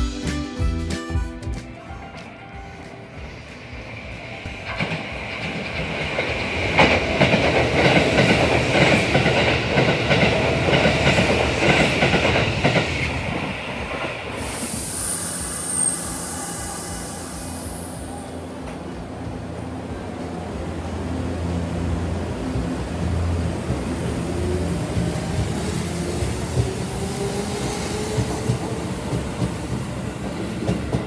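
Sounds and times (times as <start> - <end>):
train wheels clacking over rail joints: 4.5 - 14.5
high hiss: 14.3 - 18.5.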